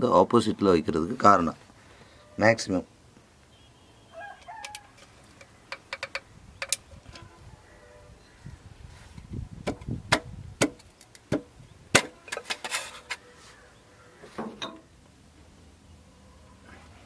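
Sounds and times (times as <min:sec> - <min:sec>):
metal parts and tools knocking: 0:04.6 - 0:07.3, 0:14.4 - 0:14.9
metal scrape: 0:12.0 - 0:13.6.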